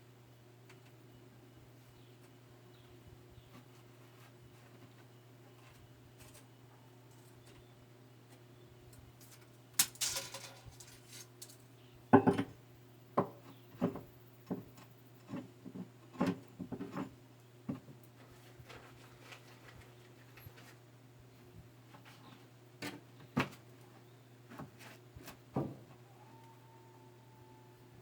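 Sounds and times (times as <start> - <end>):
faint steady hum: 0.0 - 28.0
objects knocking and clattering: 9.8 - 11.0, 12.2 - 12.6.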